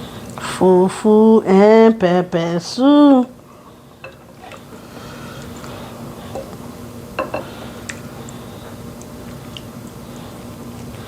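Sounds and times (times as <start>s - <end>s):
steady low hum: 0.0s - 11.0s
dishes and utensils clinking: 7.2s - 7.5s.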